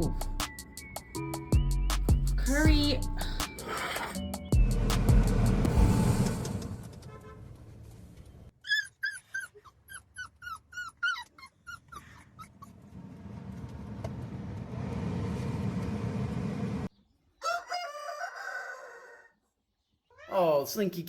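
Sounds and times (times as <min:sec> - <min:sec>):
puppy whimpering yips: 0:08.6 - 0:12.7
steady rushing noise: 0:12.9 - 0:16.9.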